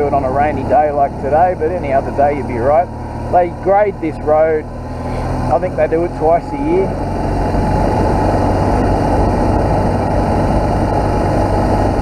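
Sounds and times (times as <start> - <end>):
motorcycle engine cruising: 0.0 - 12.0
tyres on dirt road: 0.0 - 12.0
wind noise: 6.8 - 12.0.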